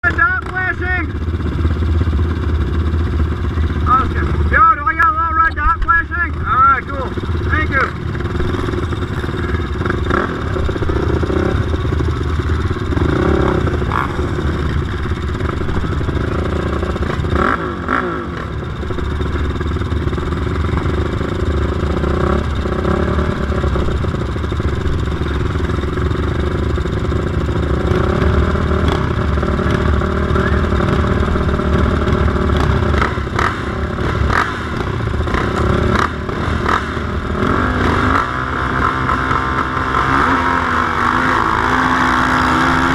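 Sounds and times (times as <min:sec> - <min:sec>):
quad engines revving: 0:00.0 - 0:42.9.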